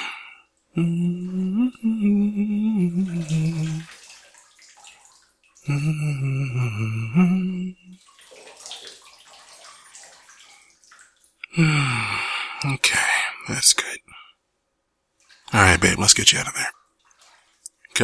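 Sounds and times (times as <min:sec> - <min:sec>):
man humming: 0:00.0 - 0:03.9, 0:05.7 - 0:08.0, 0:11.5 - 0:13.1
bathwater sloshing: 0:00.0 - 0:06.4, 0:07.3 - 0:11.5, 0:15.1 - 0:15.8, 0:16.7 - 0:17.9.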